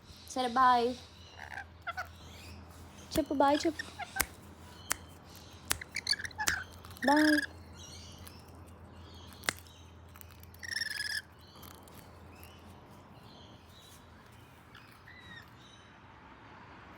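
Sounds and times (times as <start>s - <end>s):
parrots squawking: 1.2s - 5.0s, 5.7s - 7.6s, 10.3s - 12.6s
sharp click: 9.4s - 9.7s.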